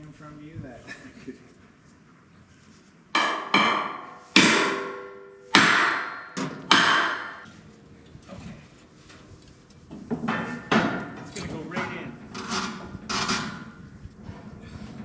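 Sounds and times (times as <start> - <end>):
hammer striking with ringing: 3.2 - 7.5.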